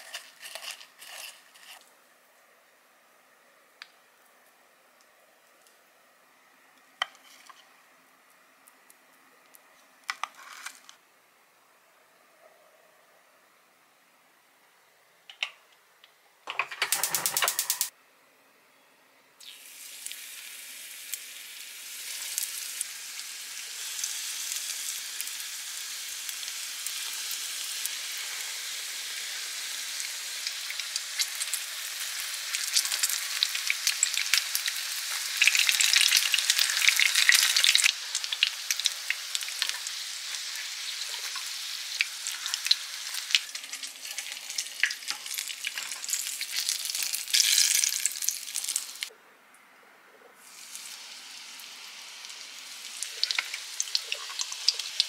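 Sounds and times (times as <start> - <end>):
food sizzling in hot oil: 0.0 - 1.8, 19.4 - 49.1, 50.4 - 55.0.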